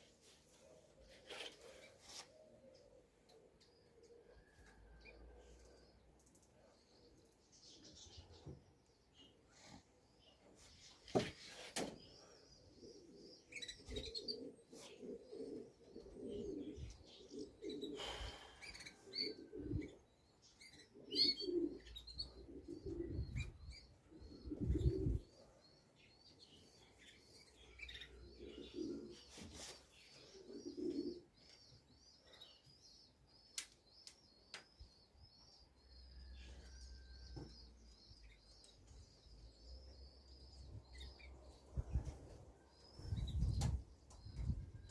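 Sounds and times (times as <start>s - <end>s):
small bird chirping: 12.1s - 15.6s
pigeons cooing: 12.2s - 31.4s.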